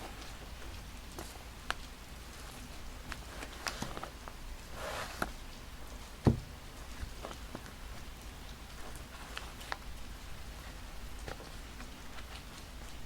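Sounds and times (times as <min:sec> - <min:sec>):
paper rustling: 0:01.1 - 0:08.0
low thump: 0:06.2 - 0:06.5.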